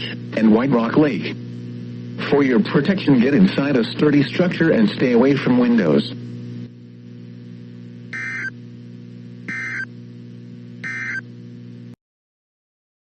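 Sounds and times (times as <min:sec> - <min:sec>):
low hum: 0:06.2 - 0:12.0
screechy digital data bursts: 0:08.2 - 0:08.5, 0:09.5 - 0:09.9, 0:10.8 - 0:11.2.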